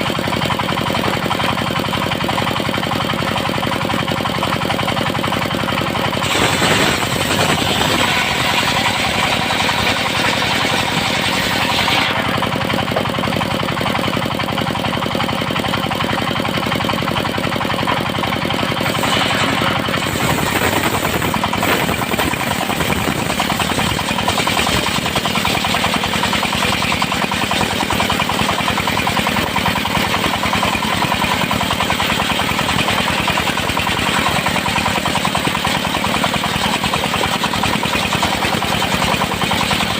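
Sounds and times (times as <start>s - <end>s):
sawmill running: 0.0s - 39.9s
saw blade cutting boards: 6.2s - 12.6s, 18.8s - 28.2s.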